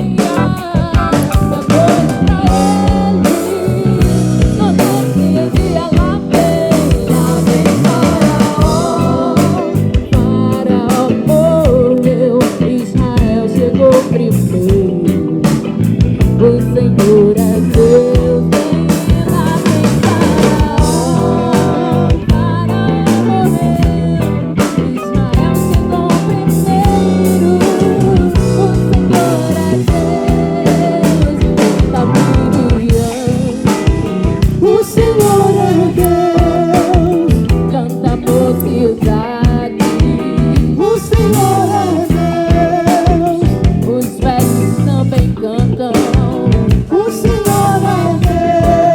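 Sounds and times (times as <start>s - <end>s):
live band playing: 0.0s - 48.9s
wavering lead melody: 0.0s - 48.9s.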